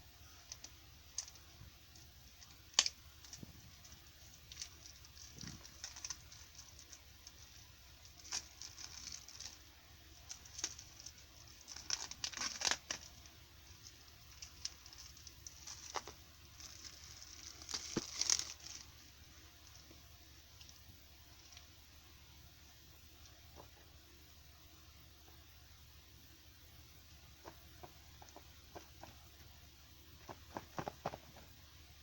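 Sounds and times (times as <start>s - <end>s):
packaging rustling and tearing: 8.0s - 9.6s, 10.2s - 13.1s, 14.3s - 19.0s.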